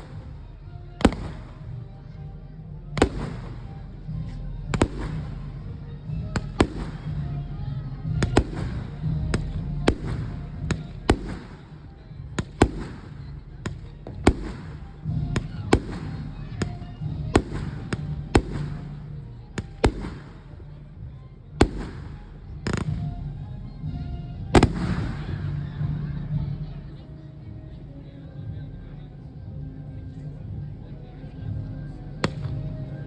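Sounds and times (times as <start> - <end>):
fireworks bangs: 0.0 - 1.8, 3.0 - 7.4, 8.0 - 19.0, 19.6 - 20.6, 21.6 - 23.1, 24.6 - 25.6
music: 0.0 - 33.0.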